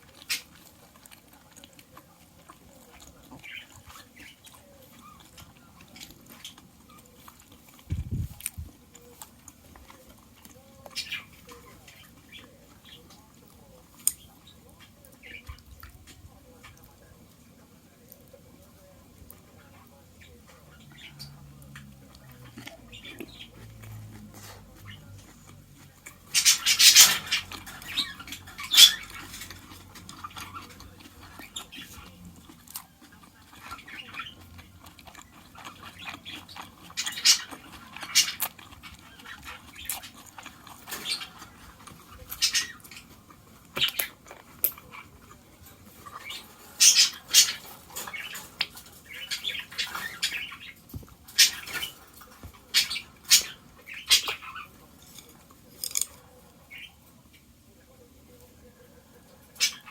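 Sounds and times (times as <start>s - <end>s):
utensils and dishes clinking: 21.7s - 56.3s.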